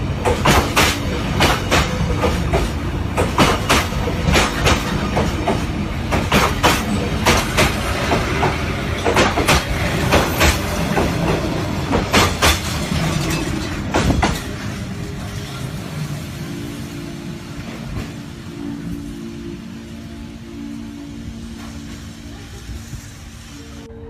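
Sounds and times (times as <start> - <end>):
train rumble: 0.0 - 24.0
train wheels clacking on rail joints: 0.2 - 14.8.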